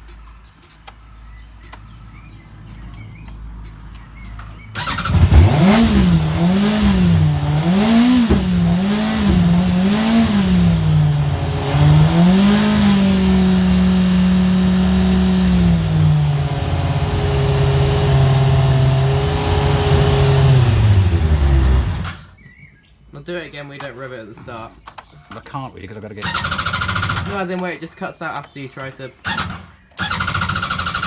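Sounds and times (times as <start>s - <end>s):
motorcycle engine revving: 4.6s - 22.3s, 26.1s - 27.5s, 29.2s - 31.0s.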